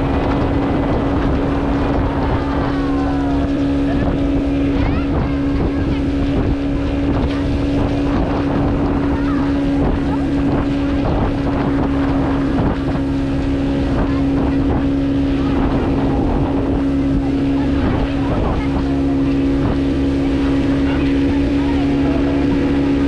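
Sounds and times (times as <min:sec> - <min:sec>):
outboard engine running: 0:00.0 - 0:23.0
rushing water: 0:00.0 - 0:23.0
wind on microphone: 0:00.0 - 0:23.0.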